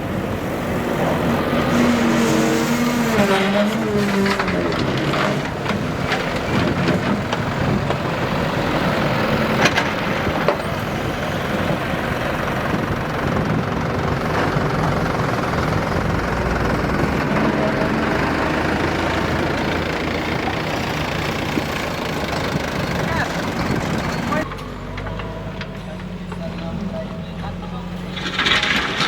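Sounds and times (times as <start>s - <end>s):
earthmoving machinery diesel engine: 0.0s - 29.0s
sharp clanks: 28.1s - 29.0s.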